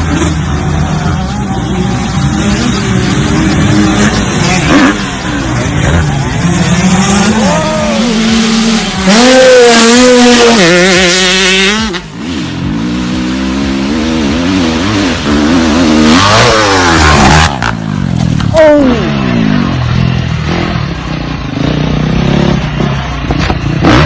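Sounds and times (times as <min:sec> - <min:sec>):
off-road vehicle engine revving: 0:00.0 - 0:24.0.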